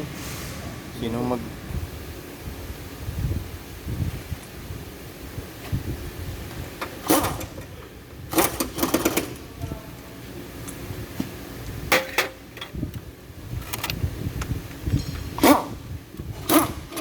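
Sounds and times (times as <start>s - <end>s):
tools and metal parts clanking: 6.8s - 9.5s, 11.9s - 12.8s, 13.6s - 17.0s.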